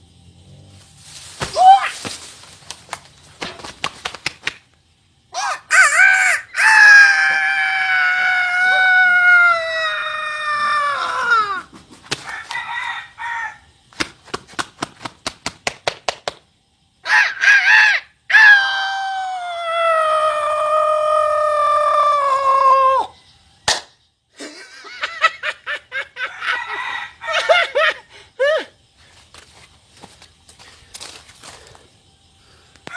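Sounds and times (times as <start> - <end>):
rooster crowing: 5.4 - 13.8, 26.0 - 28.0.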